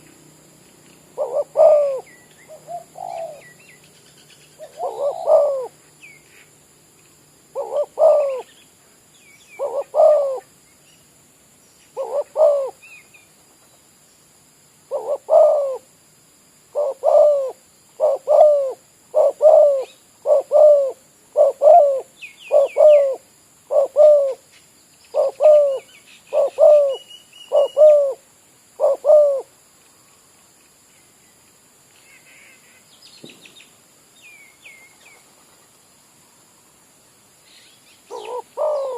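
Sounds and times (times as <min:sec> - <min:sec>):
small birds chirping: 0:00.0 - 0:14.3, 0:16.7 - 0:28.2, 0:28.8 - 0:35.8, 0:37.4 - 0:38.9
dove cooing: 0:01.1 - 0:03.7, 0:04.6 - 0:05.8, 0:07.5 - 0:08.5, 0:09.6 - 0:10.5, 0:12.0 - 0:12.9, 0:14.9 - 0:15.9, 0:16.7 - 0:24.4, 0:25.1 - 0:28.2, 0:28.8 - 0:29.5, 0:38.1 - 0:38.9.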